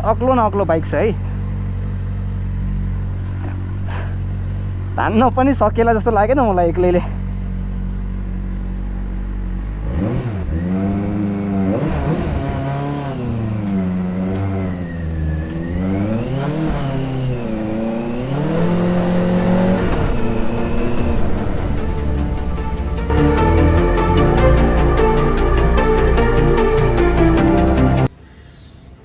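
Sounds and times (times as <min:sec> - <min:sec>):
motorcycle engine idling and revving: 0:00.0 - 0:23.2.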